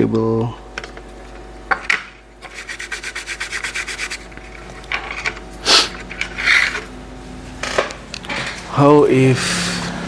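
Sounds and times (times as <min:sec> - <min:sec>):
rapid rubbing strokes: 0:02.4 - 0:06.8.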